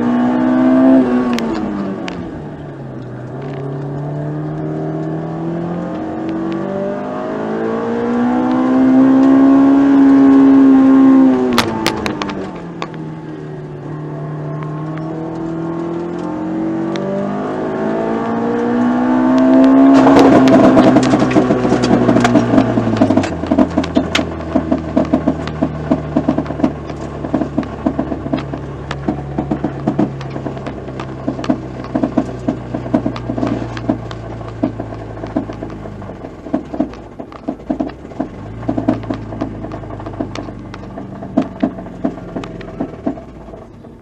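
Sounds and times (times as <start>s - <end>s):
car engine revving hard: 0.0s - 2.4s, 3.4s - 12.6s, 13.5s - 43.6s
harsh clatter of engine knocks: 19.4s - 44.0s.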